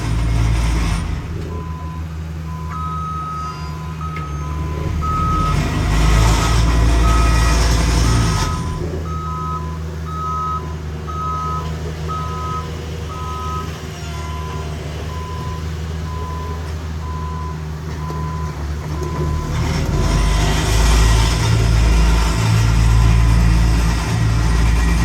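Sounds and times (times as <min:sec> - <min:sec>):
diesel engine drone: 0:00.0 - 0:25.0
low-pitched backup alarm beeping: 0:01.6 - 0:07.4, 0:08.3 - 0:19.5
high-pitched backup alarm beeping: 0:08.3 - 0:17.6.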